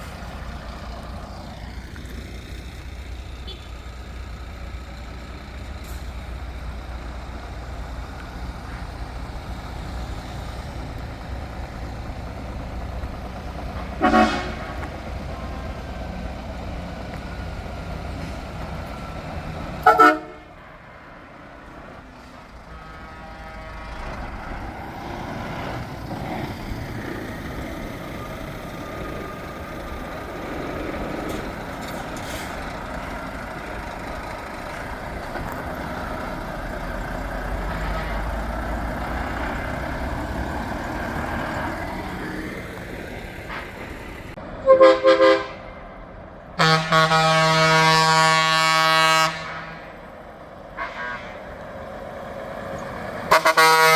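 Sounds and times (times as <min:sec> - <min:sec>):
truck engines rumbling: 0:00.0 - 0:53.9
truck horn toots: 0:03.4 - 0:03.8, 0:13.9 - 0:15.6, 0:19.8 - 0:20.7, 0:22.6 - 0:24.5, 0:37.6 - 0:38.6, 0:44.6 - 0:45.7, 0:46.6 - 0:50.0, 0:50.8 - 0:51.6, 0:53.3 - 0:53.9.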